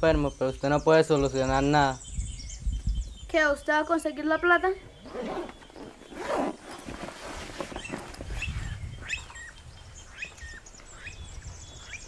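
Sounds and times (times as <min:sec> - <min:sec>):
birds whistling calls: 0:00.0 - 0:12.0
backpack rustling: 0:04.9 - 0:08.8.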